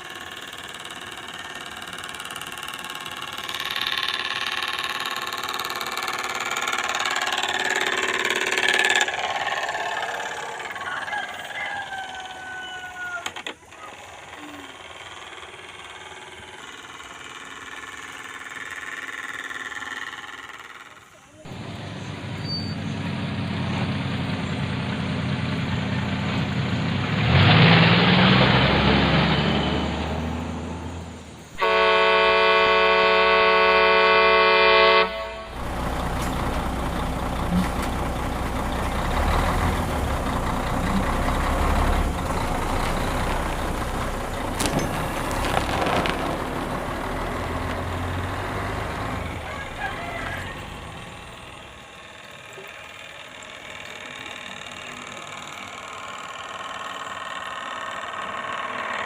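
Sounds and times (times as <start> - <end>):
low vehicle rumble: 0.0 - 59.0
truck horn blast: 31.5 - 36.4.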